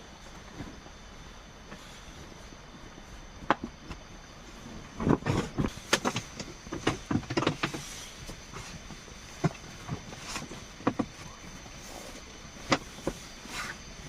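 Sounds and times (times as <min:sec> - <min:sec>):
faint high hum: 0:00.0 - 0:14.0
irregular knocks and clatters: 0:04.9 - 0:11.8.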